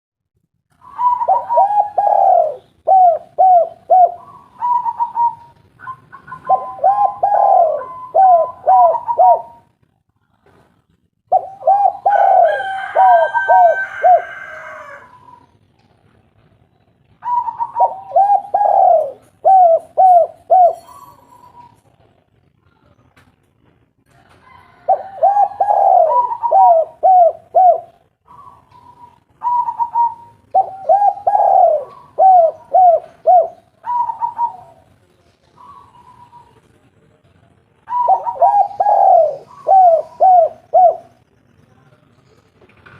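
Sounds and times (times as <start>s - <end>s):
dove cooing: 0.8s - 9.7s, 11.3s - 15.6s, 17.2s - 21.9s, 24.6s - 35.0s, 35.6s - 36.6s, 37.8s - 41.2s.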